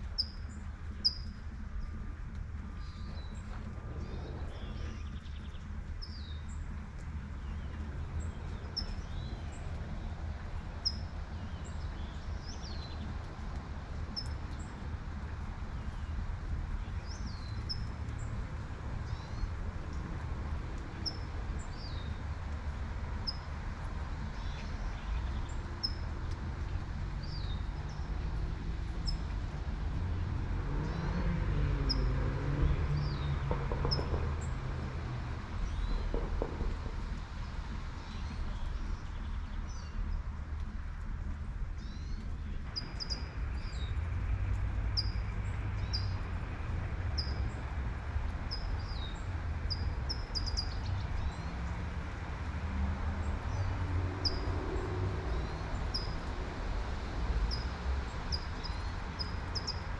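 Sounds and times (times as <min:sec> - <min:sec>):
distant traffic rumble: 0:00.0 - 0:59.9
light rain: 0:00.0 - 0:59.9
birds chirping: 0:02.8 - 0:10.0
car passing: 0:28.2 - 0:38.5, 0:50.6 - 0:59.9.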